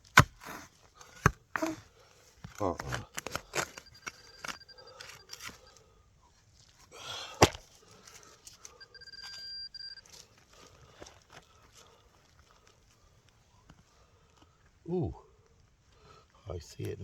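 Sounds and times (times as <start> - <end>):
digging in soil: 0.0 - 13.6
metal detector beeping tone: 2.9 - 5.8, 8.6 - 10.3.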